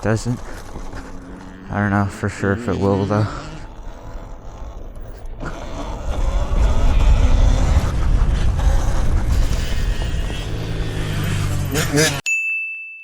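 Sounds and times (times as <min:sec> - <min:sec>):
dirt bike engine running: 0:00.0 - 0:12.2
wind rumbling on microphone: 0:03.7 - 0:11.7.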